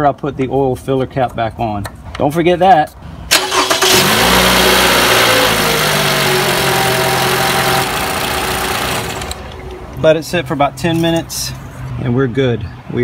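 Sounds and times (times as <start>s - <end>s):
car engine starter cranking: 3.3s - 9.6s
car engine idling: 3.3s - 10.0s.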